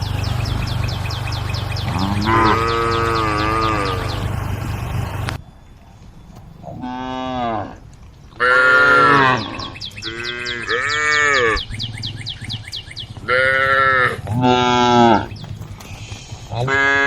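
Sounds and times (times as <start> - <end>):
cattle mooing: 1.6 - 5.2, 6.7 - 7.8, 8.4 - 11.6, 13.2 - 15.3, 16.6 - 17.0.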